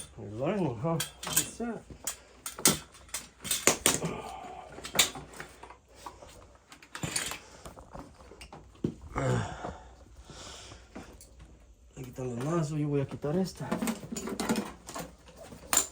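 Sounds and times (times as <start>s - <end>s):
metal tools clinking: 0.0s - 4.1s, 6.7s - 7.7s, 13.5s - 15.9s.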